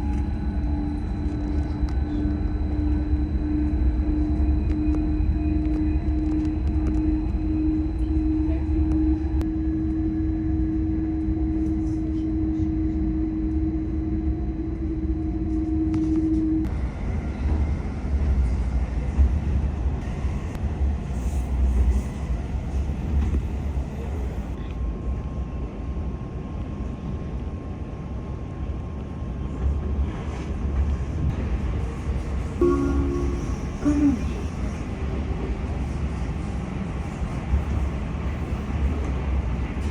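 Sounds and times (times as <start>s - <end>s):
humming tone: 0.0s - 16.7s, 32.6s - 34.7s
train rumbling on rails: 0.0s - 39.9s
faint higher hum: 32.6s - 34.6s.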